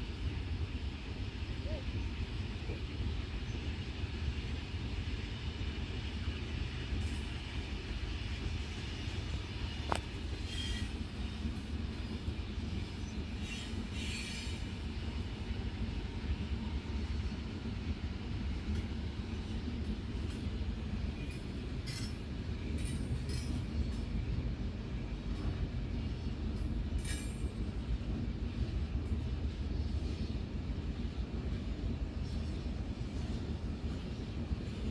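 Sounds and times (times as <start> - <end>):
freight train rumbling past: 0.0 - 34.9.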